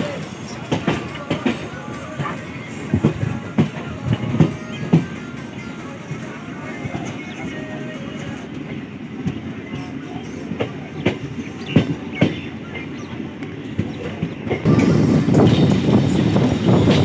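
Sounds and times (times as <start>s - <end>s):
wheels clicking over rail joints: 0.0s - 5.3s
train rumbling on track: 0.0s - 17.0s.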